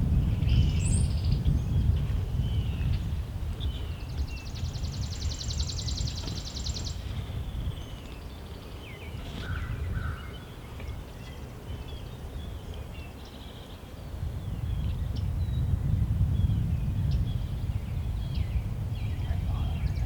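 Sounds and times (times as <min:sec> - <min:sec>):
wind rumble on microphone: 0:00.0 - 0:20.0
songbirds chirping: 0:00.3 - 0:20.0.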